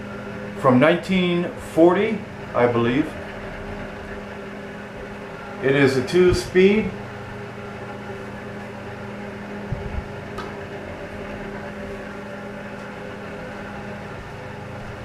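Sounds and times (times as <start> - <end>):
electric fan motor humming: 0.0 - 15.0
low thump: 9.7 - 10.1.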